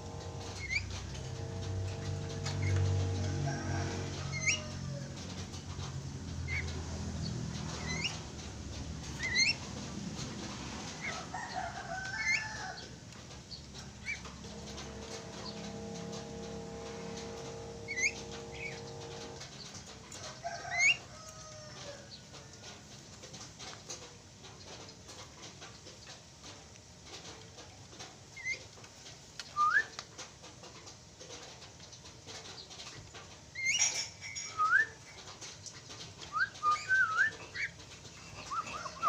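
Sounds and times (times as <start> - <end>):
steady droning tone: 0.0 - 9.0, 13.6 - 20.8
birds whistling calls: 9.1 - 9.6, 36.3 - 37.8.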